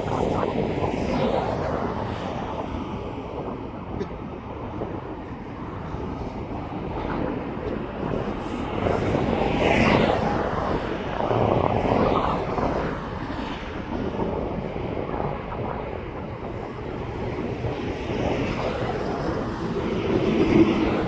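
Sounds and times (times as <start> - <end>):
airplane passing: 0.0 - 21.0.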